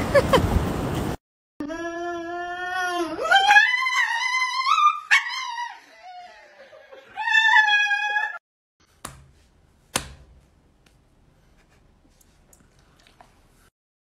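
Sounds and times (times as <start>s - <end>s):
dog screaming cries: 2.4s - 8.4s.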